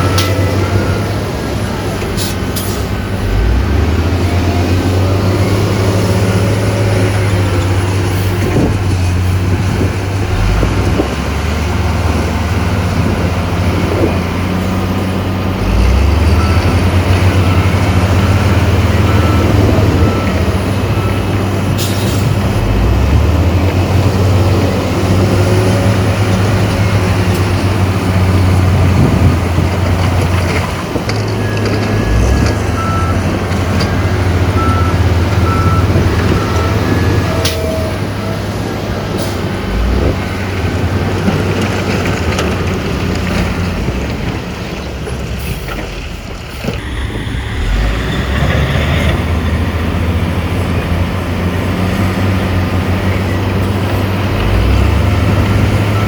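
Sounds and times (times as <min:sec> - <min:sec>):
reversing alarm beeping: 0:00.0 - 0:01.4, 0:15.7 - 0:21.4, 0:31.4 - 0:38.6, 0:46.8 - 0:49.5
heavy diesel machinery running: 0:00.0 - 0:56.0.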